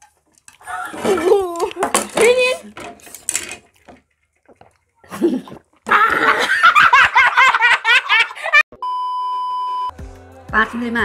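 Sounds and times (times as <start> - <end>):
person laughing hard: 5.1 - 8.6
steady electronic beep: 8.8 - 10.0.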